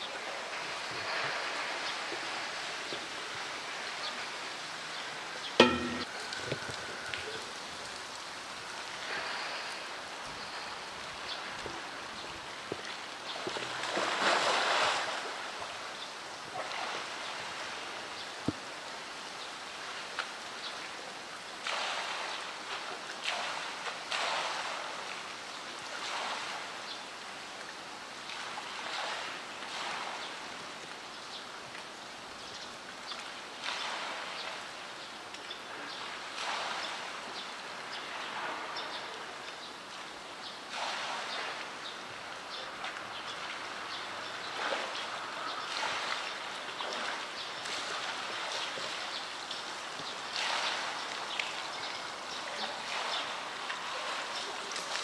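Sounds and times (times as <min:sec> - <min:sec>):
heavy rain hissing on water: 0:00.0 - 0:55.0
sharp knock: 0:05.6 - 0:06.1.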